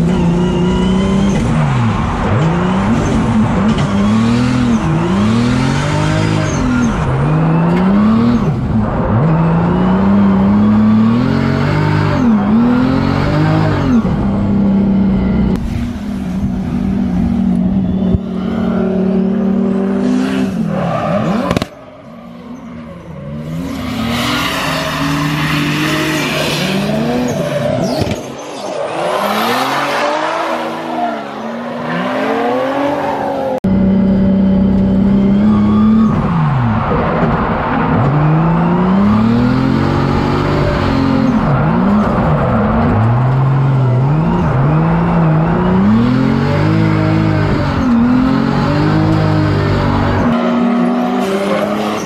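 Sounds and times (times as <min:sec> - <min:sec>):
car engine revving hard: 0:00.0 - 0:14.6, 0:29.0 - 0:52.0
tire squeal: 0:06.1 - 0:07.8, 0:16.1 - 0:33.6.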